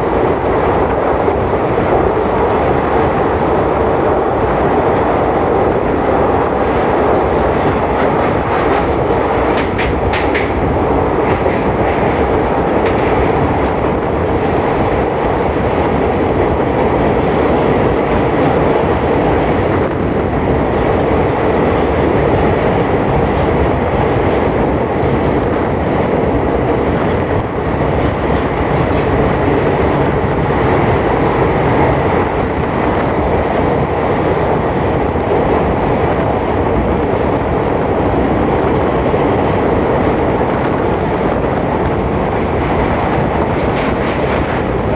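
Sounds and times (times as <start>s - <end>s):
train wheels rumbling on rail: 0.0s - 44.9s
train wheels squealing: 8.7s - 9.3s, 17.1s - 17.9s.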